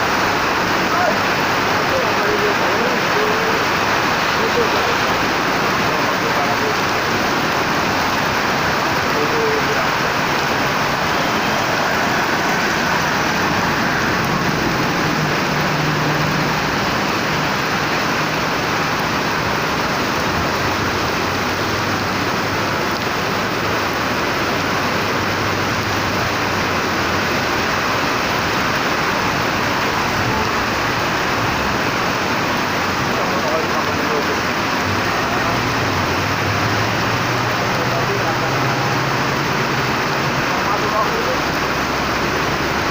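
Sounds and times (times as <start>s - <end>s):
heavy rain hissing: 0.0s - 42.9s.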